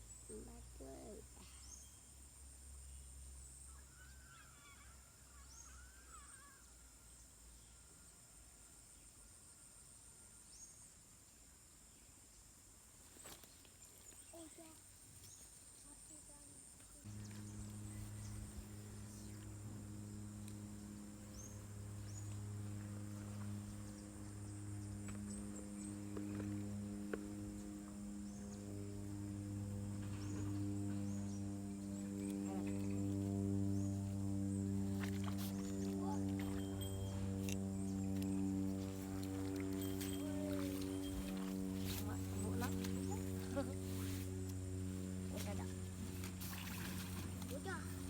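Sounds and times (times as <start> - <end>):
insects droning: 0.0 - 48.0
faint wavering bird call: 3.7 - 7.1
steady low hum: 16.9 - 48.0.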